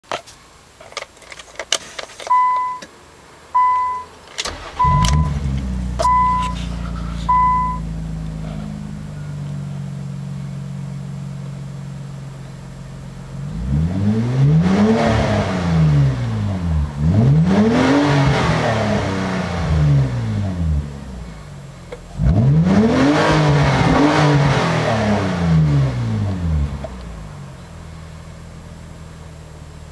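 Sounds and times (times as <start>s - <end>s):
car engine starting and idling: 2.2s - 29.9s
warning chime beeping: 3.6s - 4.1s, 4.7s - 6.6s, 7.2s - 7.9s
car engine revving: 3.6s - 27.6s
clicks: 4.3s - 7.8s.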